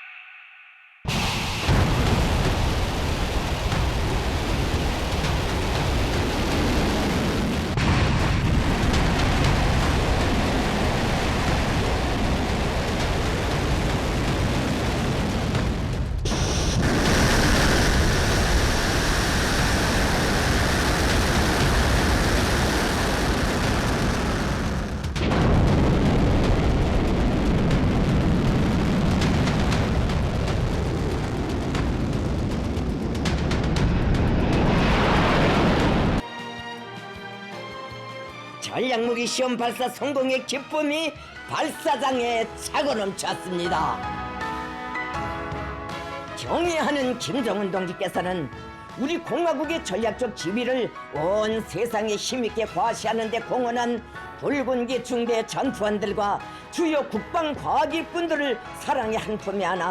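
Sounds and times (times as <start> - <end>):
rocket exhaust roar: 1.1 - 36.2.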